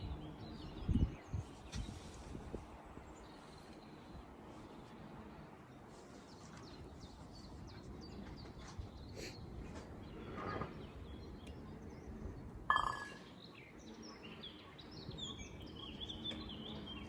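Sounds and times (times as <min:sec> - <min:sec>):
outdoor background hum: 0:00.0 - 0:17.0
faint bird chirps: 0:12.7 - 0:16.9.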